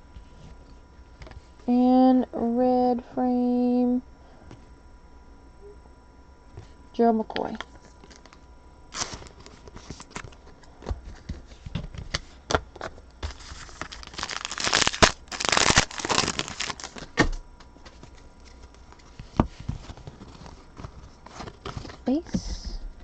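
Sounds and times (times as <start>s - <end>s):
wrapper tearing and crinkling: 8.0s - 10.4s, 13.3s - 17.2s
cards clicking and rustling: 9.0s - 17.2s.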